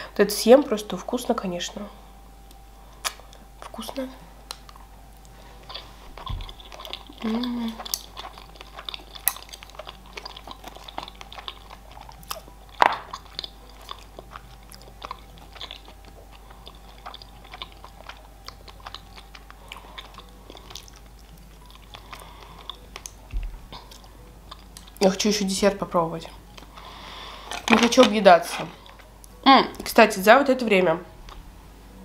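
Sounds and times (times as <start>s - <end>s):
chewing with wet mouth clicks: 2.4s - 25.1s.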